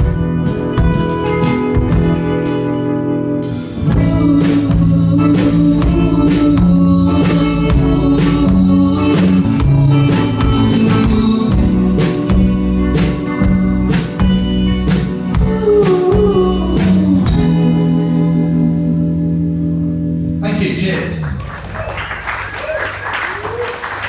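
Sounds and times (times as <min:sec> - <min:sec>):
drum kit beating steadily: 0:00.0 - 0:17.9
sustained guitar chords: 0:00.0 - 0:21.0
live band playing: 0:00.0 - 0:24.0.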